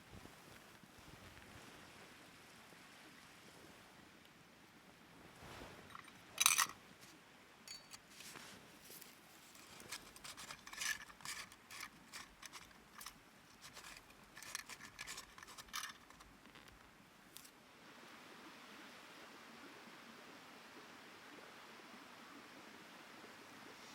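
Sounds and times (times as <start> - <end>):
crisp snipping and scraping: 7.7 - 17.5.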